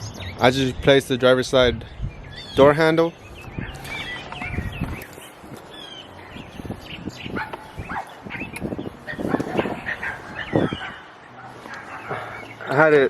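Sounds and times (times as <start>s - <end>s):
dog barking: 7.3s - 12.6s.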